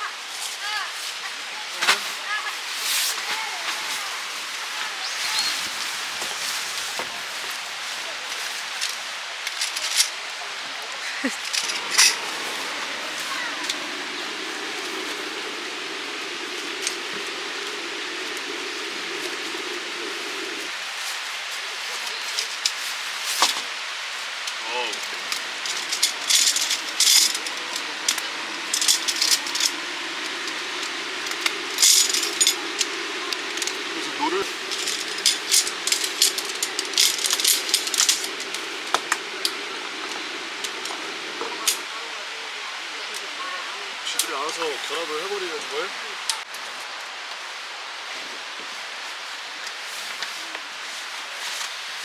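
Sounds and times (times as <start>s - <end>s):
strong wind hissing: 1.4s - 46.5s
camping gear clinking: 3.1s - 20.8s, 21.9s - 42.1s
metal gear clinking and rattling: 24.9s - 33.8s, 34.5s - 39.0s.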